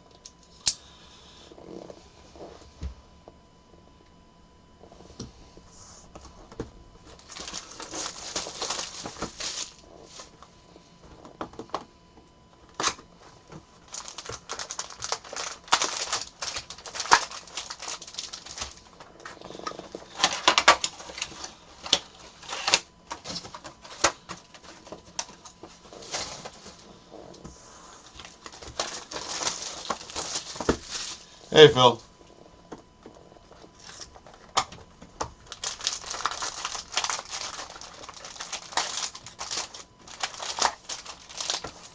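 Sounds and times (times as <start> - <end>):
packaging crinkling: 7.0 - 10.4, 12.7 - 27.4, 28.0 - 31.3, 35.3 - 41.9.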